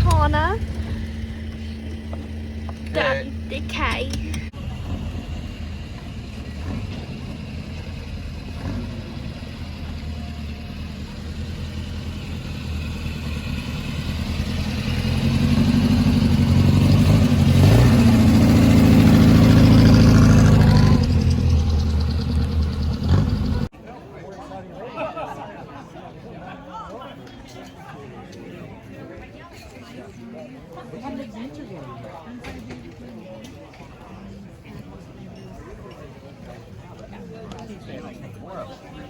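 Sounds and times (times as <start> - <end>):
car engine running: 0.0 - 23.7.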